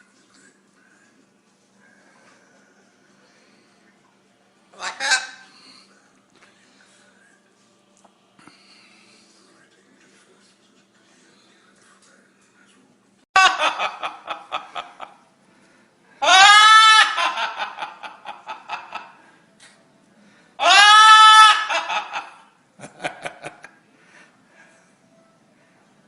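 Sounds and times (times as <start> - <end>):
parrot cackling like laughter: 4.8 - 5.5, 13.4 - 15.1, 16.2 - 19.0, 20.6 - 22.5.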